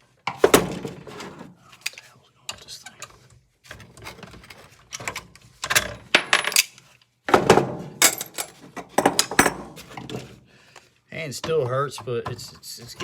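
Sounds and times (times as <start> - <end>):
metal parts and tools knocking: 5.7 - 6.7, 7.4 - 9.8
metallic clinks and clatters: 8.0 - 8.6.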